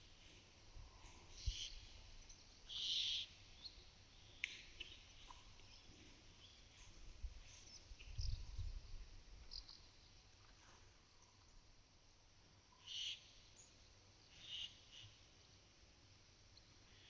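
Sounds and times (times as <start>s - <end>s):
small birds calling: 0.9s - 8.8s, 12.8s - 15.2s.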